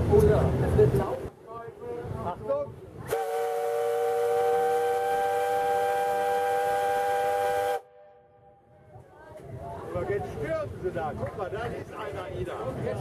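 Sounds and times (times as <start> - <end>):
steam whistle blowing: 3.1 - 8.4.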